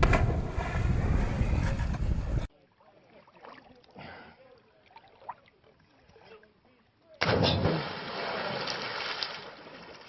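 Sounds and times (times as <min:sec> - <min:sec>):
wind buffeting microphone: 0:00.0 - 0:02.5.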